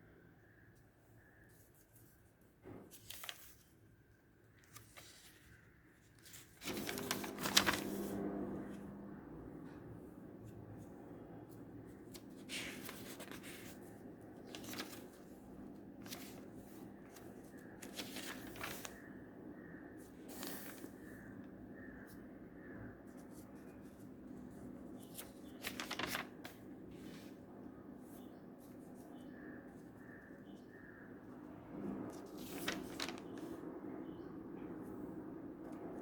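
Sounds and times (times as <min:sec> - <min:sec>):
paper rustling: 0:01.5 - 0:08.8, 0:11.5 - 0:22.2, 0:23.0 - 0:27.5, 0:31.7 - 0:33.6.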